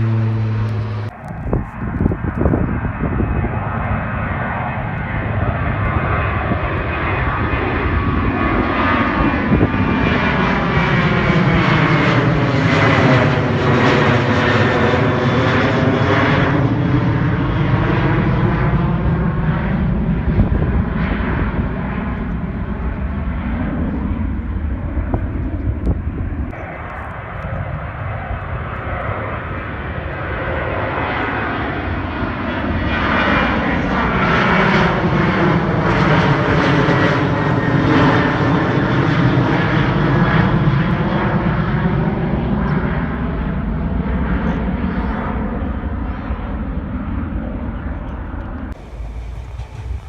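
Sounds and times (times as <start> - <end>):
jet airliner passing overhead: 0.0 - 50.0.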